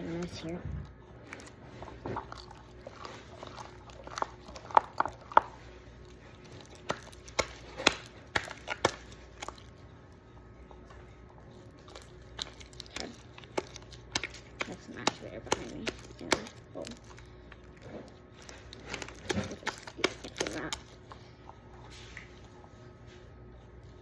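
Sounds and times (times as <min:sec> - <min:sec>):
slime clicking and popping: 0:06.5 - 0:09.7, 0:11.8 - 0:17.7, 0:18.4 - 0:21.0.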